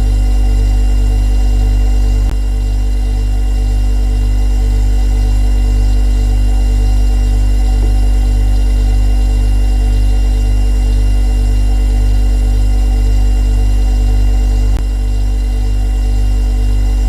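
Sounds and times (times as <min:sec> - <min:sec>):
refrigerator humming: 0:00.0 - 0:17.0.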